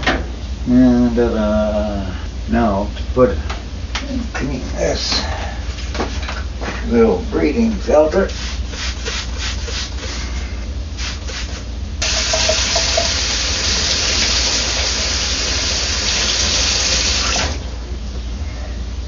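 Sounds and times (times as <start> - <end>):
running water rinsing a filter: 11.0 - 17.6.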